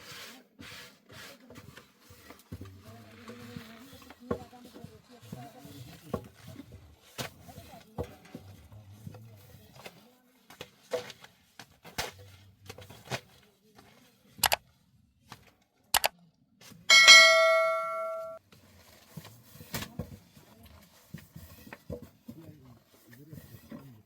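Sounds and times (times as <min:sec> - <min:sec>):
metal object ringing when struck: 0:16.9 - 0:18.4
light knocks and clatters: 0:19.0 - 0:24.0.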